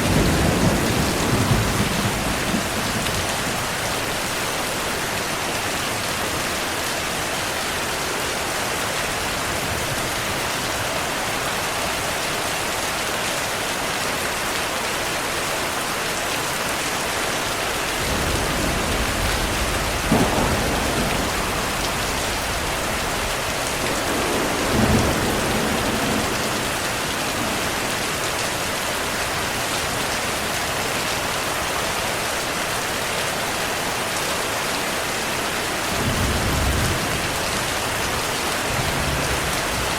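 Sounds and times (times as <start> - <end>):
thunder rumbling and cracking: 0.0 - 4.3, 17.8 - 29.6, 36.0 - 39.9
heavy rain: 0.0 - 39.9.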